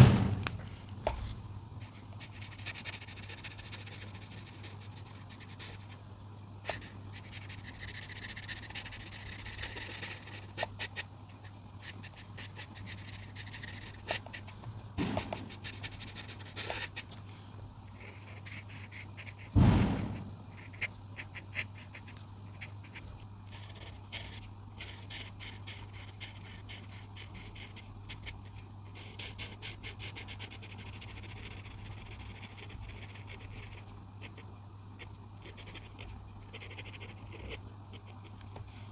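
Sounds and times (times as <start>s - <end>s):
dull thud: 0.0s - 1.2s, 15.0s - 15.6s, 19.6s - 20.4s
steady low hum: 0.0s - 38.9s
coloring tool scratching paper: 1.9s - 6.0s, 6.7s - 17.1s, 18.0s - 19.6s, 20.5s - 34.4s, 35.0s - 38.4s.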